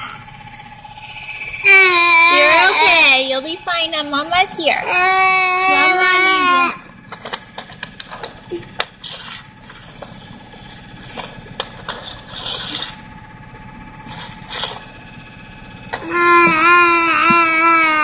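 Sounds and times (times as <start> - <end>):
steady whirring vibration: 0.0 - 18.0
clicks rubs and scrapes: 7.1 - 13.0.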